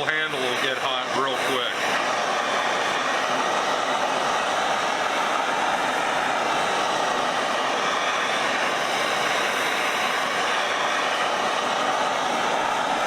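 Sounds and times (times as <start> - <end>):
blowtorch flame hissing: 0.0 - 13.0.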